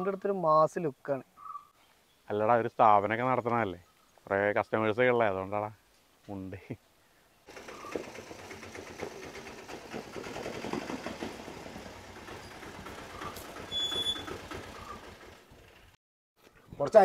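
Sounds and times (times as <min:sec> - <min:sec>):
auto-rickshaw engine puttering: 0:07.5 - 0:16.0
brief high squeal: 0:13.7 - 0:15.0.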